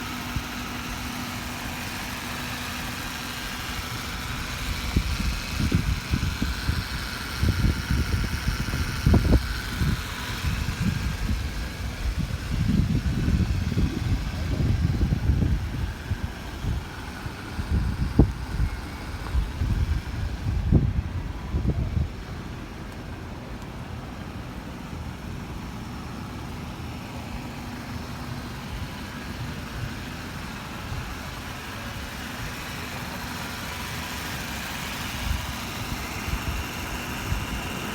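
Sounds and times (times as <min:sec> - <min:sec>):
car engine running: 0:00.0 - 0:37.9.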